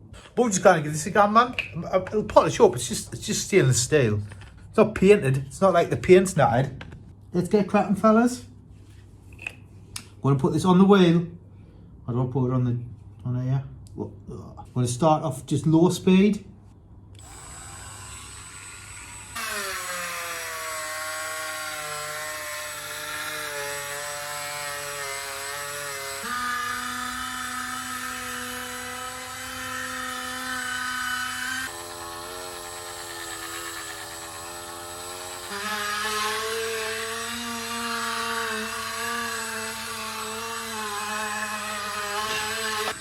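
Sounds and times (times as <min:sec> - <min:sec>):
rotary tool whine polishing metal: 0:17.2 - 0:43.0.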